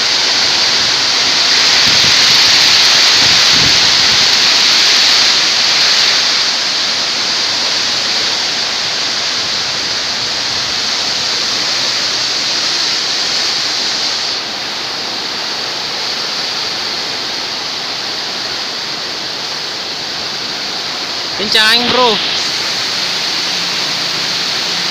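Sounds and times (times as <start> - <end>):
strong wind rushing: 0.9 - 4.9.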